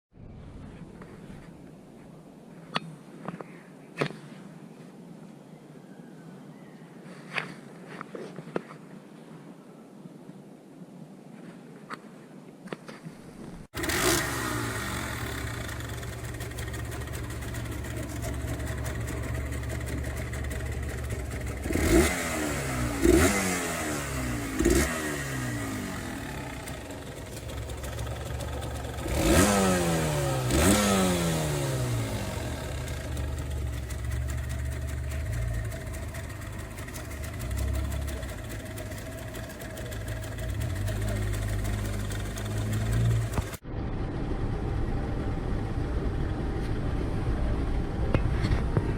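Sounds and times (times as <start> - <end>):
small motorcycle engine revving: 13.8 - 43.6.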